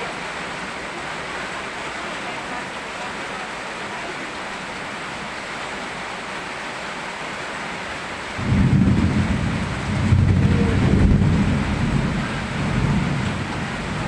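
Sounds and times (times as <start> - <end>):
steady rain: 0.0 - 14.0
loud low rumble: 8.4 - 14.0.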